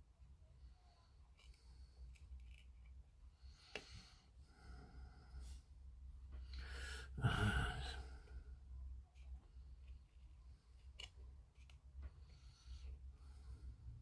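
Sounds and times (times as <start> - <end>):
person exhaling heavily: 6.6 - 8.2.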